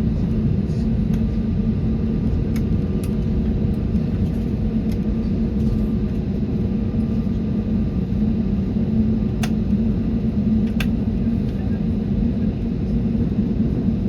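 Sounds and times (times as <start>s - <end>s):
airplane cabin engine rumble: 0.0s - 14.0s
click: 10.7s - 10.9s.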